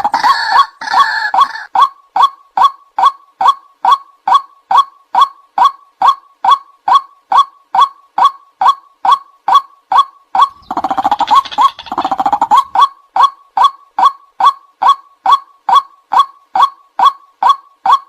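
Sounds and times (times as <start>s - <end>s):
waterhen calling: 0.0s - 1.9s, 10.4s - 12.9s.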